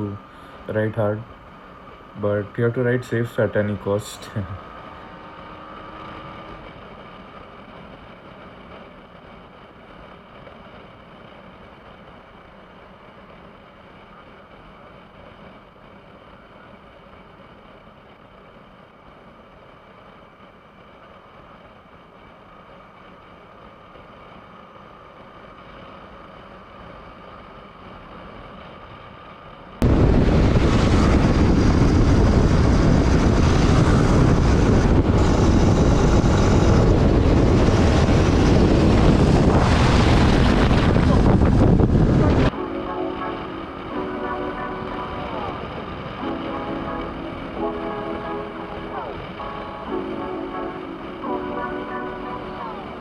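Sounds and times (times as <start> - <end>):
motorcycle engine and road hum: 3.7 - 12.1, 29.8 - 42.6
wind rush on microphone: 29.8 - 53.0.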